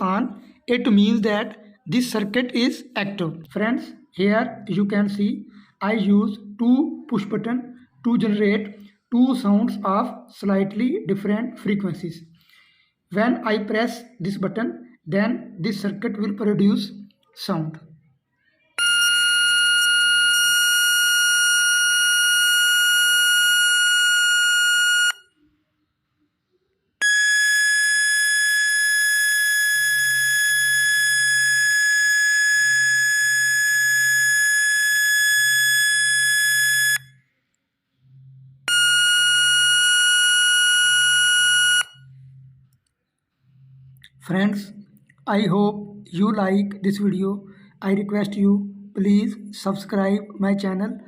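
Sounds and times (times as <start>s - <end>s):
buzzy electronic tone: 27.0s - 37.1s.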